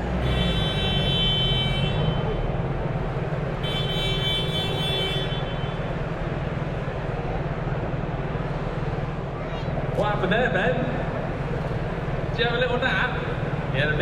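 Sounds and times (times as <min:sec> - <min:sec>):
crowd din in a hall: 0:04.5 - 0:14.0.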